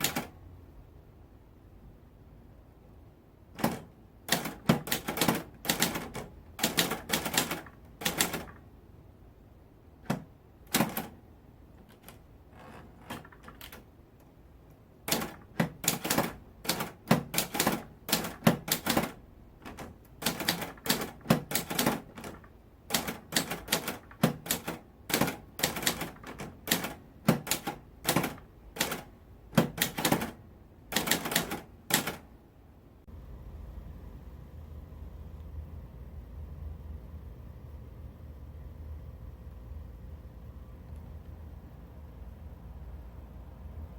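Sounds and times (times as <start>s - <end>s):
typewriter keys clacking: 0.0s - 0.3s, 3.6s - 8.6s, 10.0s - 11.2s, 11.8s - 13.9s, 15.1s - 32.2s.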